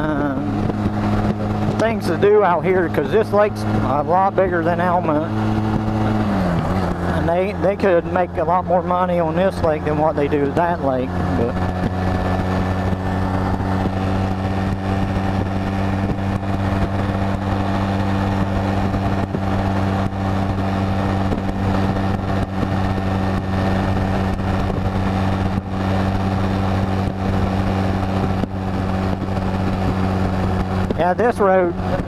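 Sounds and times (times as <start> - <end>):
motorcycle engine running: 0.0 - 32.0
wind on microphone: 10.6 - 32.0.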